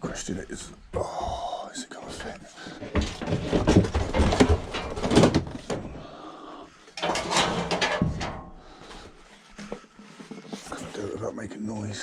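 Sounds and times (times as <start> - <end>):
metal barbecue clattering and scraping: 3.0 - 5.9, 7.0 - 8.8.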